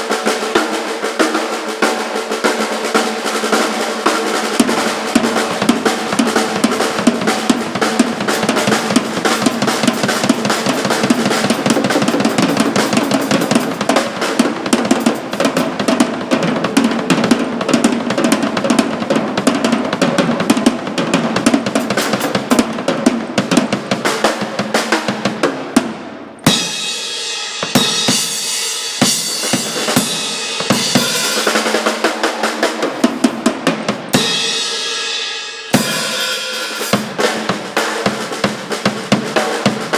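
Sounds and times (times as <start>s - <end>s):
drum kit played hard: 0.0s - 39.9s
cymbals ringing: 26.4s - 37.2s.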